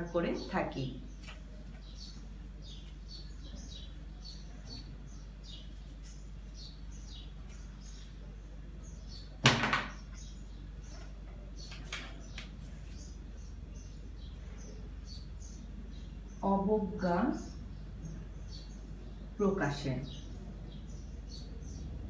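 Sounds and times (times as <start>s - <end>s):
low steady hum: 0.0s - 22.0s
small birds chirping: 0.0s - 22.0s
sharp knock: 9.4s - 10.0s.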